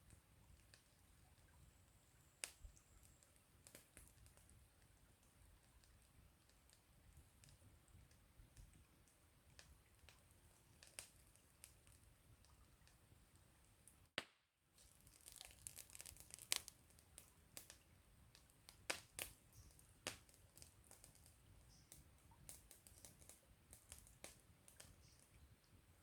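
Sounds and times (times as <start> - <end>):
campfire crackling: 0.0 - 14.0, 14.8 - 26.0
fire pops and snaps: 2.4 - 4.5, 9.6 - 12.0, 13.9 - 25.4.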